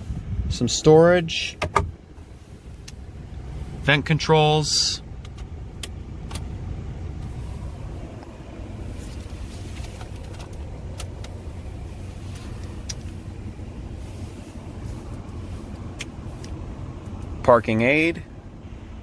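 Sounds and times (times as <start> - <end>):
car cabin rumble: 0.0 - 19.0.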